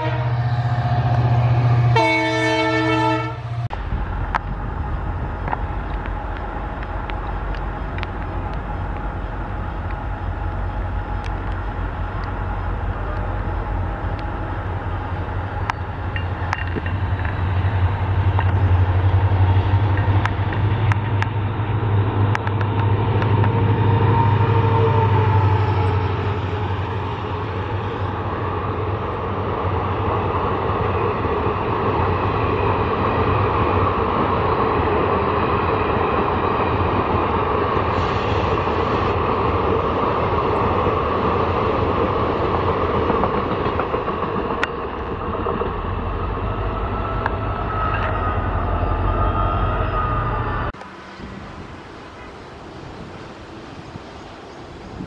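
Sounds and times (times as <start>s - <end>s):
diesel locomotive engine throb: 0.0s - 35.0s, 36.6s - 53.1s
train wheels rumbling on rails: 0.0s - 55.0s.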